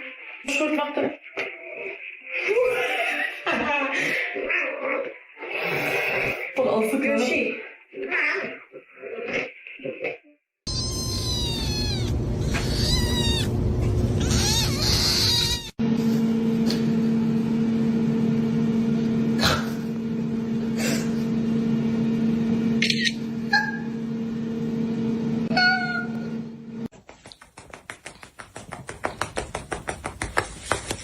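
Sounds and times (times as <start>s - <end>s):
cats meowing: 7.9s - 10.1s, 10.7s - 15.8s
quick run of ticks: 27.0s - 31.0s.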